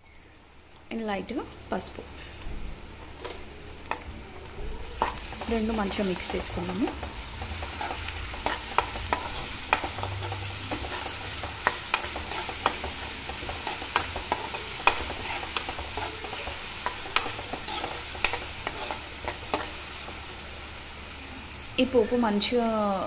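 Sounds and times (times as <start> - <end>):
vegetables sizzling in oil: 0.0 - 23.0
steel spoon scraping a pan: 3.2 - 4.1, 4.8 - 20.3.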